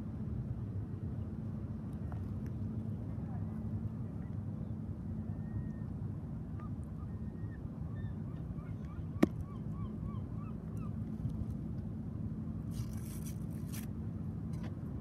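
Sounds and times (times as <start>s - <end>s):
bird calling: 7.0s - 11.0s.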